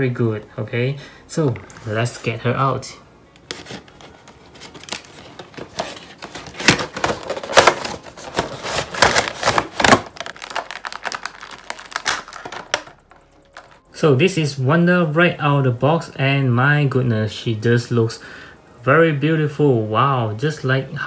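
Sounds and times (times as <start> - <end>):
plastic packaging crinkling: 3.5 - 13.8.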